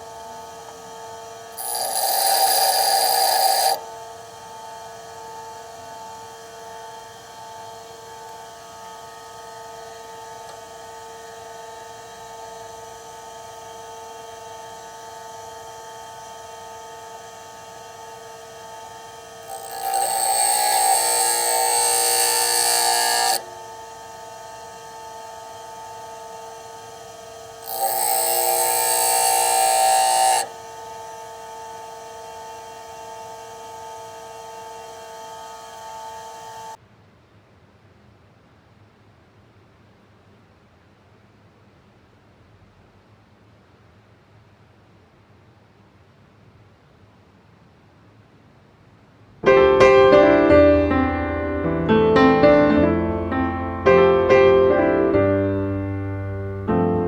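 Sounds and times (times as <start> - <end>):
bench grinder running: 0.0 - 11.3, 17.9 - 36.8
grinder grinding drill bit: 1.5 - 3.8, 19.3 - 23.6, 27.4 - 30.8.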